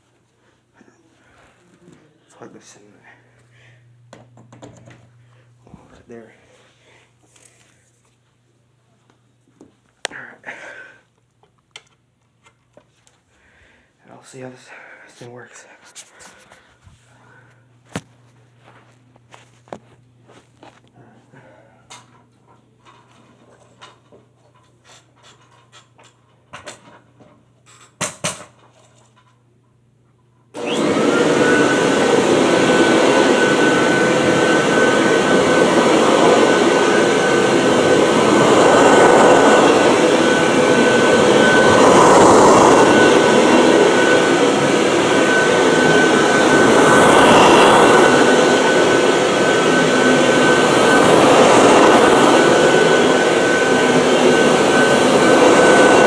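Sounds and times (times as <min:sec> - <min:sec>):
vacuum cleaner running: 0:00.8 - 0:07.6, 0:16.0 - 0:22.2, 0:30.6 - 0:56.0.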